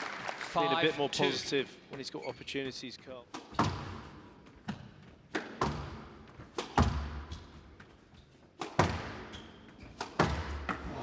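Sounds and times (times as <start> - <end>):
squash ball hitting rackets and walls: 3.3 - 11.0.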